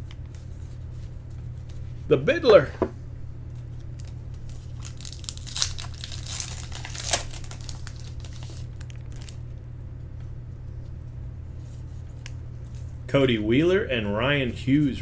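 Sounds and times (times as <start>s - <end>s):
steady low hum: 0.0s - 5.0s
foil wrapper crinkling and tearing: 3.9s - 9.4s.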